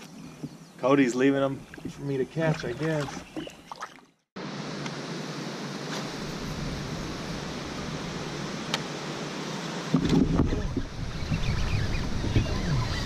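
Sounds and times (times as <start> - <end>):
wind on microphone: 9.9 - 13.0.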